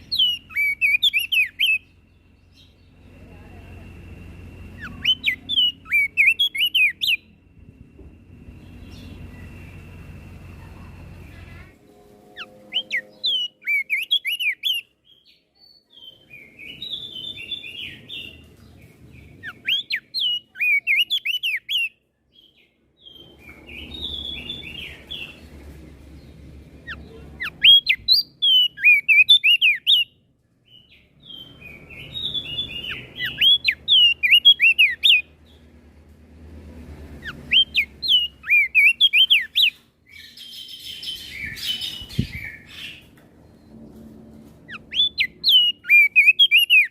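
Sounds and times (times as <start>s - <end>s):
bird chattering: 0.0s - 1.9s, 4.7s - 7.3s, 32.2s - 35.3s, 37.2s - 43.1s
bird singing whistled phrases: 0.0s - 1.9s, 4.7s - 7.3s, 12.4s - 18.4s, 19.4s - 25.4s, 26.8s - 30.2s, 31.2s - 35.3s, 37.5s - 43.0s, 44.7s - 46.9s.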